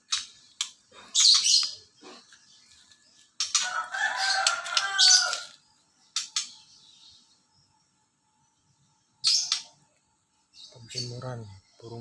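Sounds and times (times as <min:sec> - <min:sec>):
songbird chirp: 0:00.0 - 0:12.0
rooster crowing: 0:03.6 - 0:05.6.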